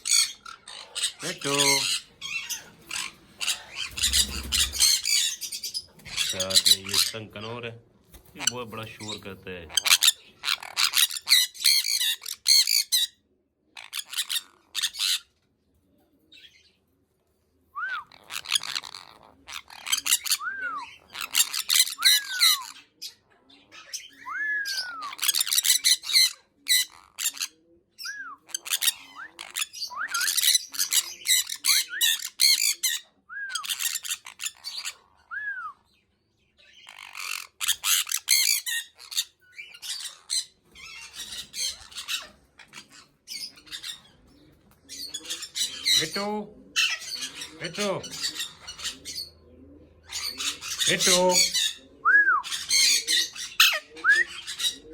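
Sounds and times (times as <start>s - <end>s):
parrot squawking: 0.0s - 7.6s, 8.2s - 13.2s, 13.8s - 15.3s, 17.9s - 35.4s, 36.6s - 44.3s, 44.9s - 54.9s
parrot whistled calls: 1.8s - 5.8s, 17.8s - 18.8s, 19.8s - 22.7s, 24.0s - 27.3s, 28.0s - 35.9s, 50.1s - 54.8s.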